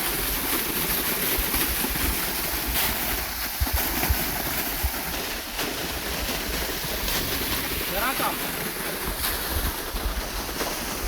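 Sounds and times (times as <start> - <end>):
waterfall rushing: 7.5 - 9.1.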